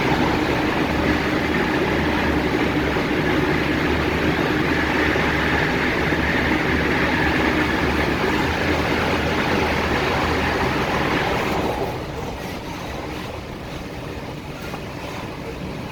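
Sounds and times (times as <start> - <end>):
train wheels rumbling on rail: 0.0 - 15.9.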